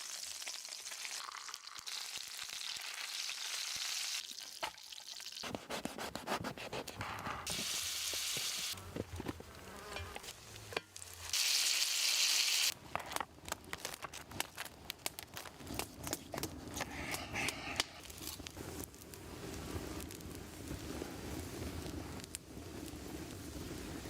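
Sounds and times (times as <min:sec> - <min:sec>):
food sizzling in a pan: 0:00.0 - 0:05.4, 0:07.5 - 0:08.8, 0:10.0 - 0:12.8
loud hissing burst: 0:07.5 - 0:08.8
sharp crackles and clicks: 0:12.7 - 0:24.0.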